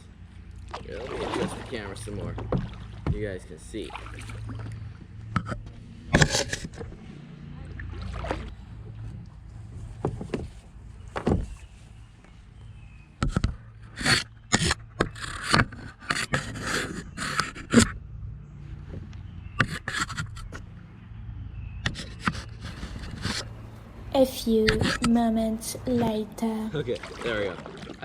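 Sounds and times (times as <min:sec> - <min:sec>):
camera handling scrapes and clicks: 0:19.6 - 0:20.6, 0:21.9 - 0:23.5.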